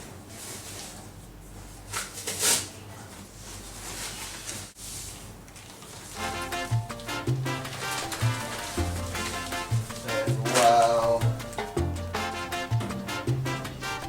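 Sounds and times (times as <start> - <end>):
rustling and handling noises: 0.0 - 12.0
music: 6.2 - 14.0.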